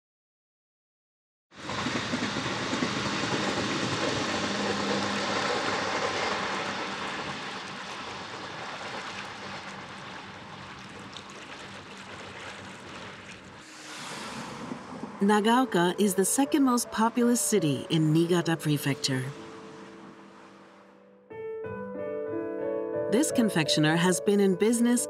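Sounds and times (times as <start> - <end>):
train rumbling along track: 1.6 - 11.1, 13.5 - 20.5.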